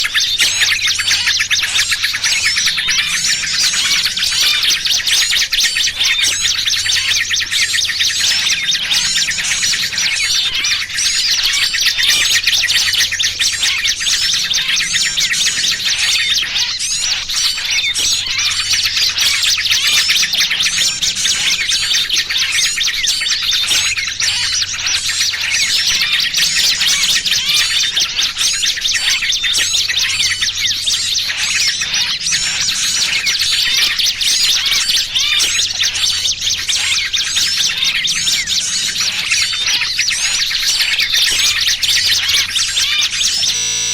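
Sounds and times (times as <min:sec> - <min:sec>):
small birds chirping rapidly: 0:00.0 - 0:43.9.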